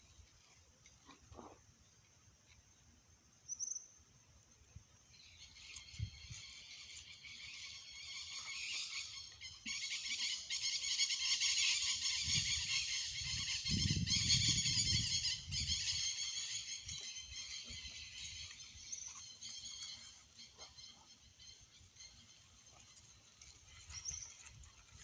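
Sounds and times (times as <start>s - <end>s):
chorus of calling insects: 5.0s - 25.0s.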